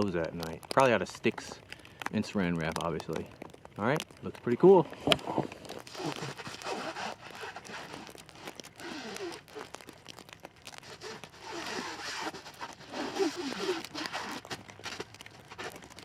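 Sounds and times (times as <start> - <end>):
plastic stretch wrap ripping: 0.0 - 16.0
stretch film squeaking: 4.9 - 16.0.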